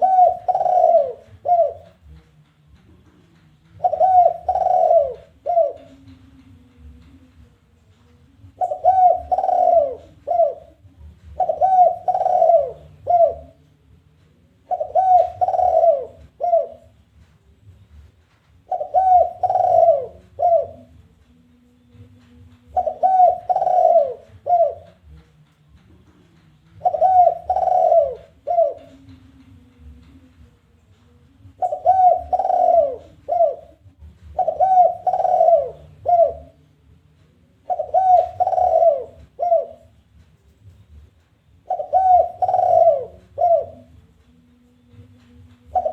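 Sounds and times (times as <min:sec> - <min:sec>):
dove cooing: 0:00.0 - 0:02.2, 0:03.7 - 0:07.2, 0:08.4 - 0:13.6, 0:14.5 - 0:17.0, 0:18.6 - 0:21.0, 0:21.9 - 0:25.2, 0:26.7 - 0:30.2, 0:31.4 - 0:36.7, 0:37.5 - 0:40.0, 0:41.6 - 0:44.2, 0:44.9 - 0:45.9.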